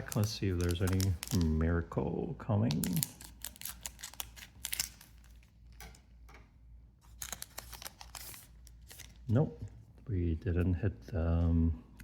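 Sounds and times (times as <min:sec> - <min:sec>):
cards handled crinkles and clicks: 0:00.0 - 0:01.6, 0:02.6 - 0:06.0, 0:07.0 - 0:09.8
foil pack tearing: 0:00.0 - 0:01.6, 0:02.8 - 0:05.3.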